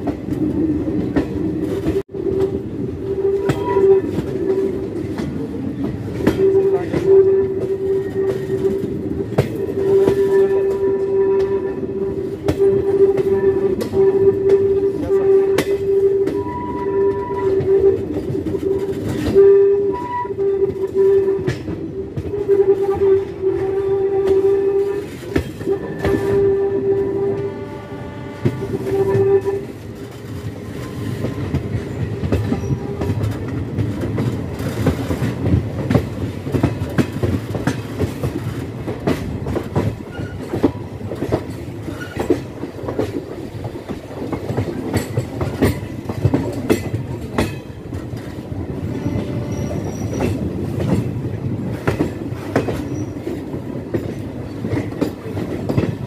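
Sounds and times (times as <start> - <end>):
train rumbling along track: 0.0 - 56.0
locomotive horn blasts: 1.8 - 5.2, 6.1 - 33.3, 48.7 - 51.0
wheels clicking over rail joints: 28.2 - 56.0.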